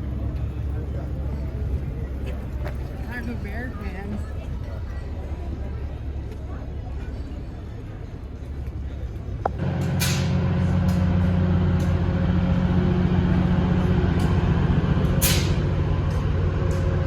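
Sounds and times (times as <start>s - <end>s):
large engine running: 0.0s - 17.0s
air release hisses: 15.2s - 15.6s.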